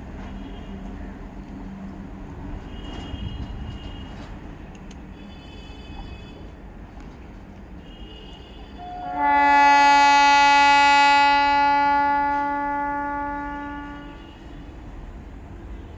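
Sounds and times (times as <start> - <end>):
passing train rumble: 0.0 - 15.9
train horn blast: 2.6 - 4.3, 7.8 - 14.8.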